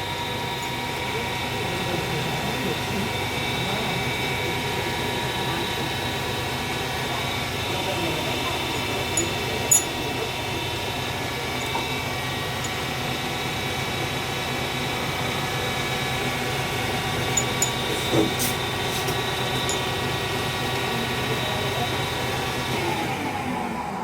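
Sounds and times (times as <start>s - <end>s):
machine humming and whining: 0.0s - 24.0s.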